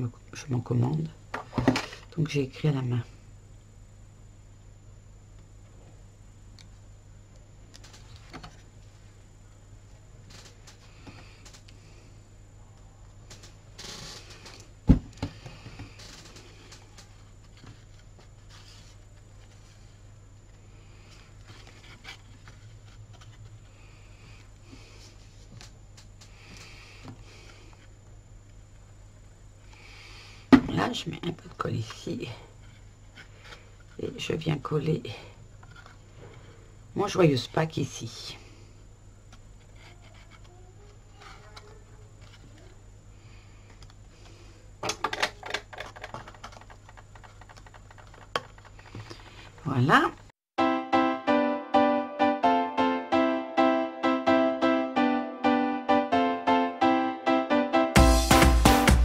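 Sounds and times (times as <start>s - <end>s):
steady low hum: 0.0s - 50.3s
sharp clicks and crinkles: 44.8s - 49.6s.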